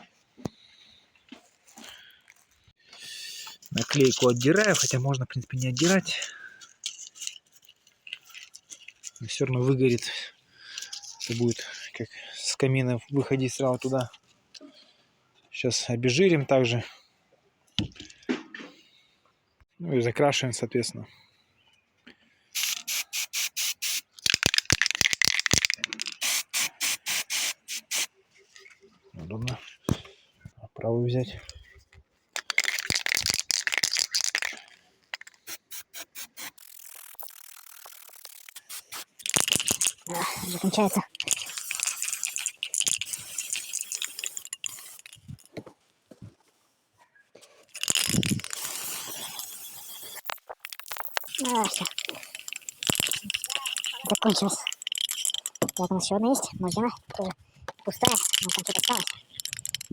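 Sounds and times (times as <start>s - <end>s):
spray can being shaken: 3.3s - 9.2s, 10.8s - 11.8s, 22.6s - 28.1s, 32.4s - 45.5s, 47.7s - 59.9s.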